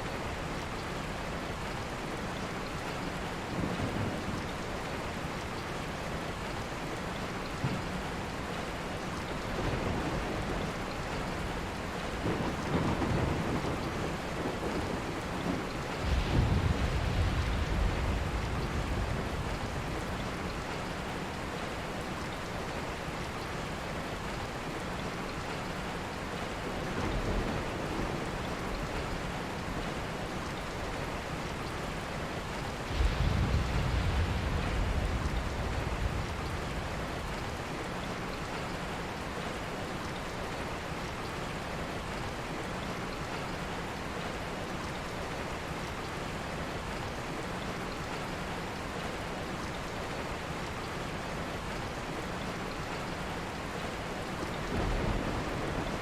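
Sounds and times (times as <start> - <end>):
steady rain: 0.0 - 56.0
thunder rumbling: 12.2 - 20.7, 32.8 - 37.7, 54.6 - 56.0.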